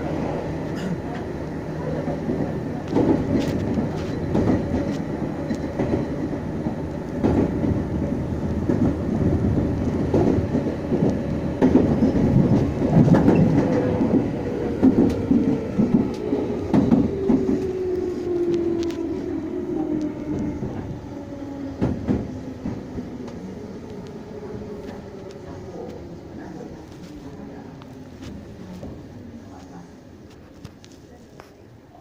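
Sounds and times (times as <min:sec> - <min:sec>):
train wheels rumbling on track: 0:00.0 - 0:31.7
rail-joint clicks: 0:09.7 - 0:19.1.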